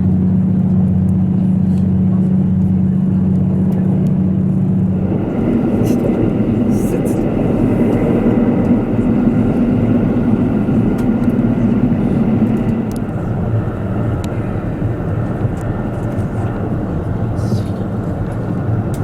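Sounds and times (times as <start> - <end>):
diesel train engine drone: 0.0 - 19.0
wheels on rails: 4.9 - 14.4.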